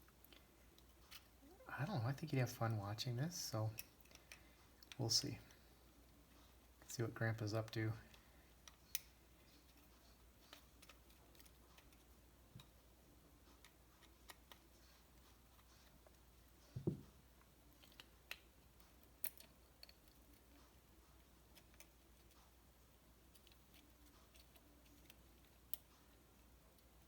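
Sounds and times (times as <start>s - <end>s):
faint clicks of small parts: 0.0s - 1.5s, 2.5s - 27.0s
soft thump: 16.8s - 17.1s.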